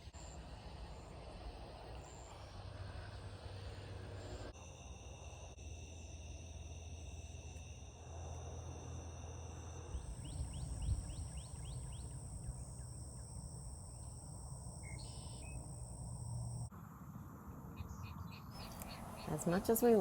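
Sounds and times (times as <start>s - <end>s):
night insects trilling: 0.0s - 16.7s
rising chirps: 9.5s - 16.7s.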